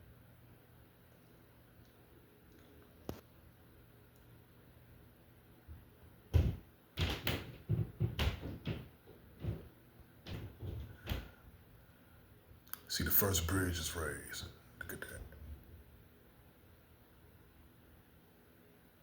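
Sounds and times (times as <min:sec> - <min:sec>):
knocks and clunks of hard parts: 0:06.3 - 0:11.4.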